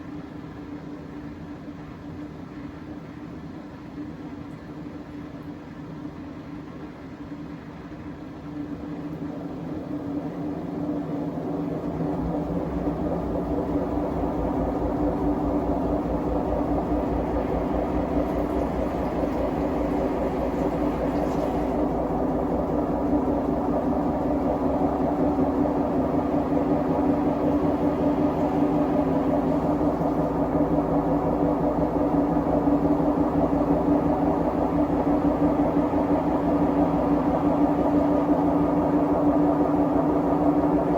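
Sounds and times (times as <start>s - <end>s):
washing machine drone: 0.0s - 40.9s
deep rumble: 10.0s - 40.9s.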